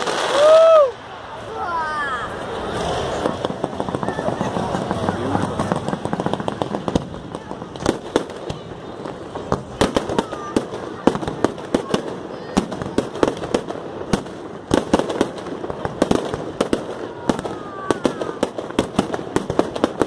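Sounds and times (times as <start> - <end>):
falling firework whistle: 0.0 - 1.0
fireworks bangs and pops: 0.0 - 1.1, 2.2 - 20.0.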